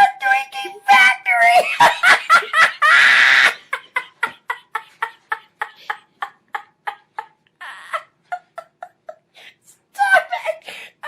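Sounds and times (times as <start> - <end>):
person laughing rhythmically: 1.4 - 9.4.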